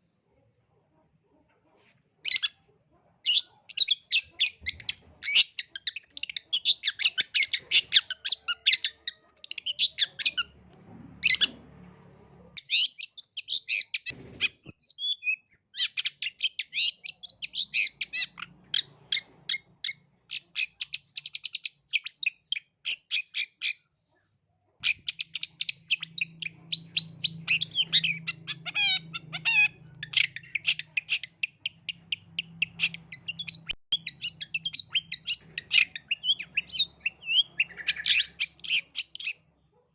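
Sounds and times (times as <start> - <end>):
bird singing harsh rapid chirps: 3.2 - 10.6, 24.8 - 39.5.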